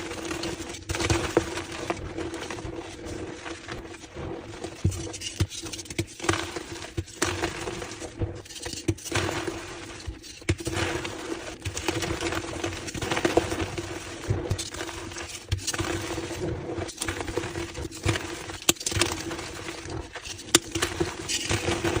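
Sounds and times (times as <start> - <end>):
chalk blocks crunching and snapping: 16.9 - 22.0.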